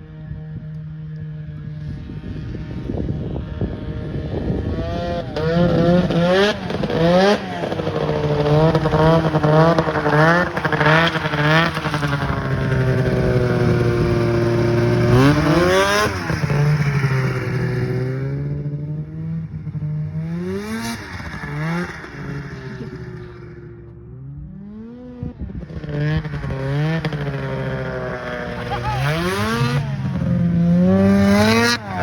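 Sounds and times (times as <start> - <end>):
snowmobile engine revving: 1.7 - 32.0.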